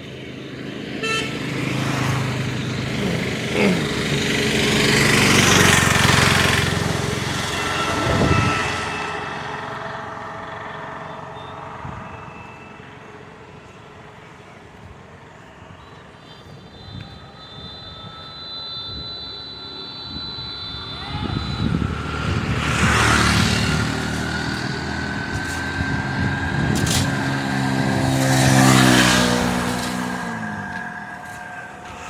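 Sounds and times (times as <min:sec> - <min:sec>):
motor vehicle passing by: 0:00.7 - 0:12.0, 0:21.2 - 0:32.0.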